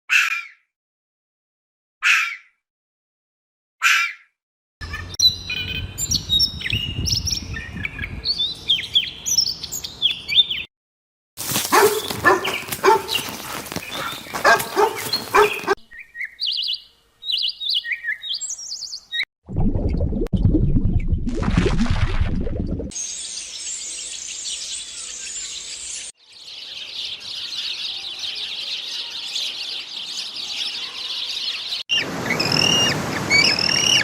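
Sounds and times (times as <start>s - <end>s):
birds chirping: 4.8s - 10.7s, 11.6s - 19.3s, 23.0s - 34.0s.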